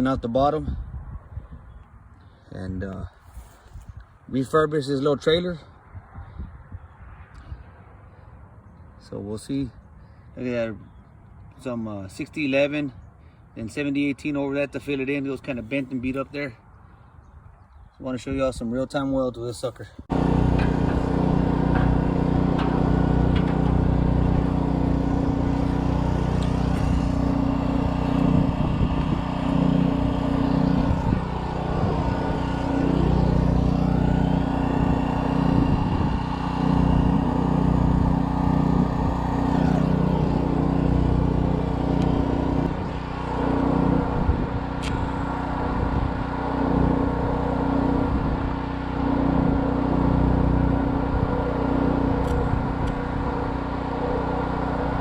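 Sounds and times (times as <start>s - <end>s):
generator engine hum: 20.0s - 55.0s.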